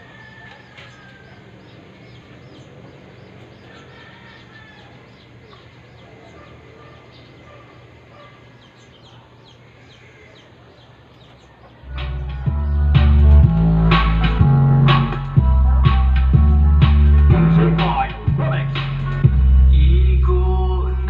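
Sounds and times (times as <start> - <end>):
small birds chirping: 0.0 - 13.2
steady low hum: 11.8 - 21.0.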